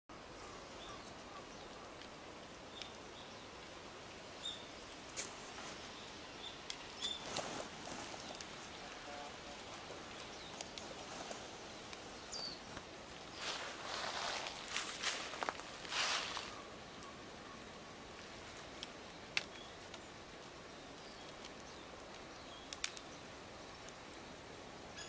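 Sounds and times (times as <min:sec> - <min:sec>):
faint steady hiss: 0:00.1 - 0:25.0
light rustling: 0:04.9 - 0:09.0, 0:09.6 - 0:16.6.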